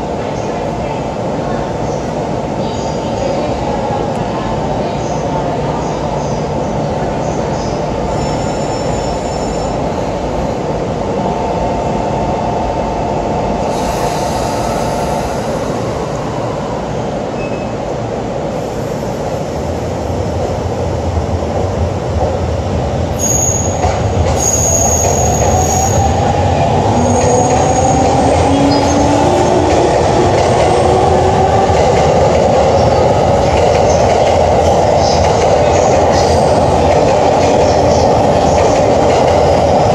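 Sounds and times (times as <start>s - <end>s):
train wheels squealing: 8.0s - 9.9s, 17.4s - 17.8s, 23.2s - 26.2s.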